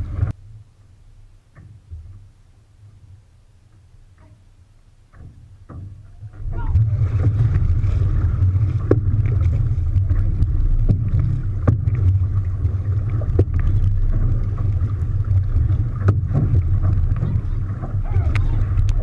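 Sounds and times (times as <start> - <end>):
boat engine low rumble: 0.0 - 19.0
wind on microphone: 5.8 - 19.0.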